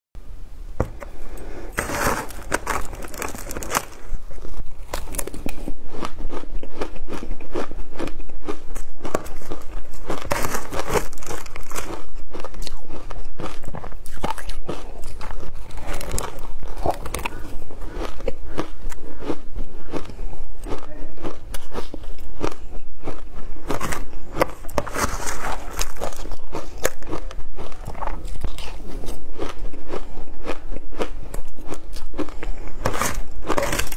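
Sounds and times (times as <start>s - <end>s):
ice crunching while chewed: 1.7s - 33.9s.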